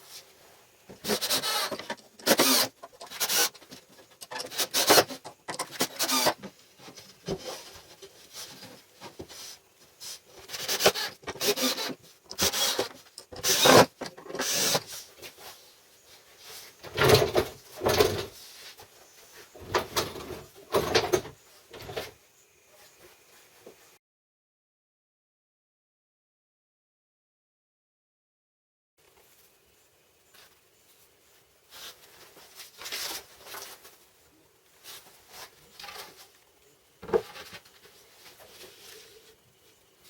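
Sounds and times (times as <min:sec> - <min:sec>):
hand rubbing and scraping strokes: 0:00.0 - 0:12.0, 0:14.4 - 0:16.8, 0:18.3 - 0:19.6, 0:30.3 - 0:34.1, 0:37.2 - 0:40.0.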